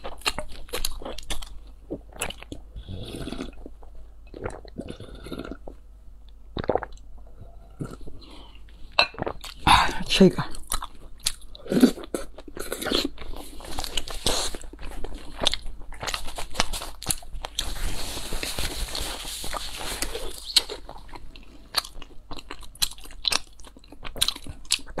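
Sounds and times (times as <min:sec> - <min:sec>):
wet chewing mouth sounds: 0:10.5 - 0:25.0.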